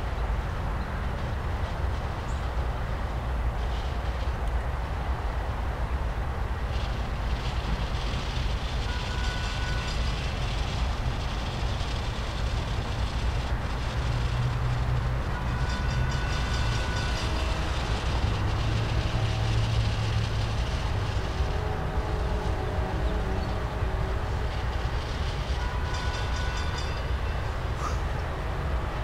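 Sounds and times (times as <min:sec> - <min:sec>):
train wheels rumbling on rails: 0:00.0 - 0:29.0
thin high tone: 0:15.3 - 0:28.0.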